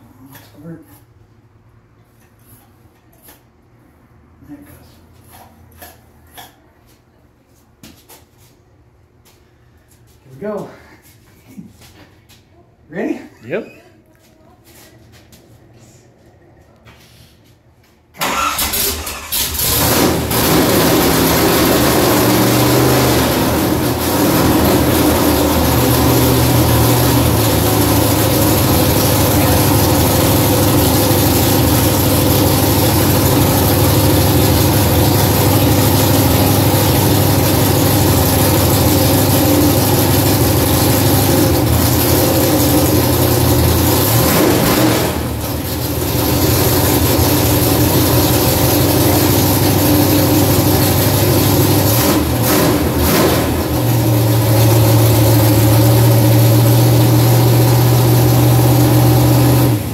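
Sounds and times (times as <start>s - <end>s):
car engine starting and running: 18.2s - 59.9s.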